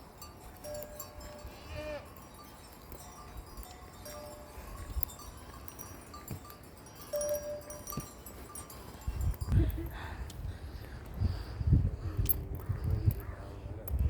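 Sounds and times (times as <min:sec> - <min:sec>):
livestock bells clinking: 0:00.0 - 0:11.1.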